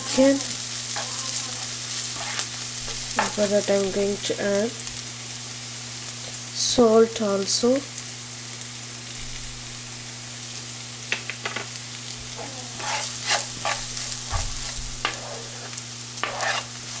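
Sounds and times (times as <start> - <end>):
spatula scraping a pan: 0.0 - 3.4, 12.3 - 17.0
vegetables sizzling in hot oil: 0.0 - 17.0.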